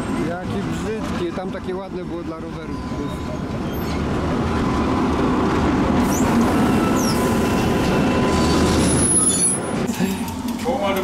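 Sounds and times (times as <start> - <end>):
train rumble and hum: 0.0 - 11.0
high falling squeaks: 6.1 - 9.8.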